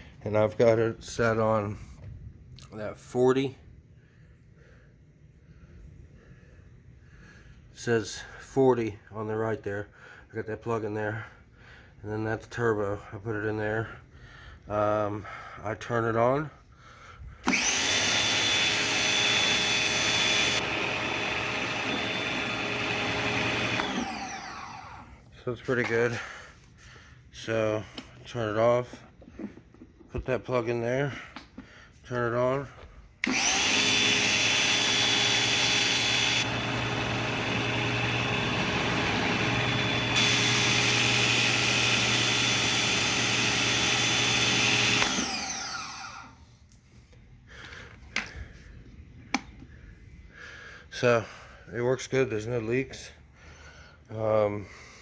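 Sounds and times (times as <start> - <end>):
pressure washer motor whine: 17.4 - 25.3, 33.2 - 46.4.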